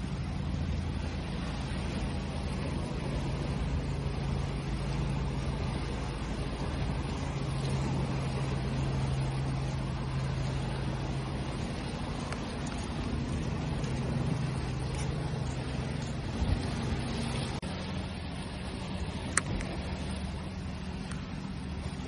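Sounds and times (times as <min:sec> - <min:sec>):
low mechanical hum: 0:00.0 - 0:22.0
ocean waves washing: 0:00.0 - 0:22.0.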